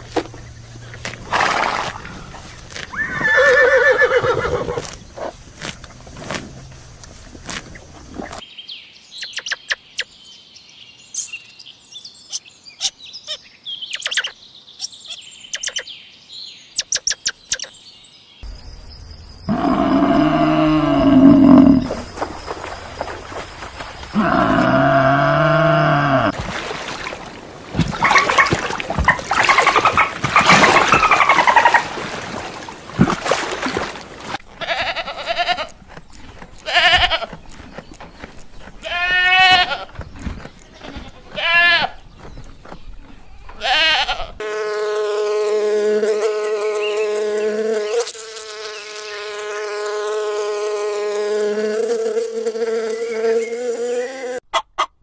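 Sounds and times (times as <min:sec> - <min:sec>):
wavering bleats: 0:19.5 - 0:21.9, 0:24.1 - 0:26.4, 0:34.6 - 0:35.8, 0:36.6 - 0:37.4
farm animal calls: 0:19.5 - 0:22.1, 0:24.1 - 0:26.4, 0:34.6 - 0:44.4.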